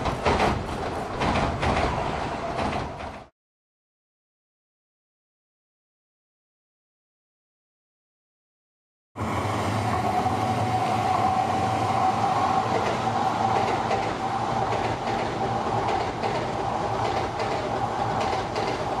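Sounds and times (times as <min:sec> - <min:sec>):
train wheels rumbling: 0:00.0 - 0:03.3, 0:09.2 - 0:19.0
wheels clicking over rails: 0:00.0 - 0:03.3, 0:10.8 - 0:19.0
steady train tone: 0:09.2 - 0:19.0.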